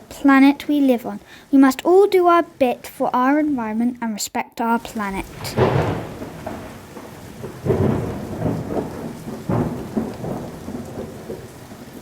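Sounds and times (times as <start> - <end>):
steady rain: 0.0 - 12.0
thunder rumbling: 4.8 - 12.0.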